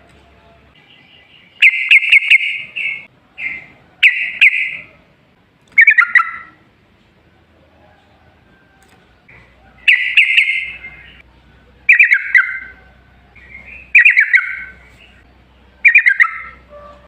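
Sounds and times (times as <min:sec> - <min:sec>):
bulbul singing chattering phrases: 0:00.4 - 0:05.0, 0:05.8 - 0:06.6, 0:09.4 - 0:17.0.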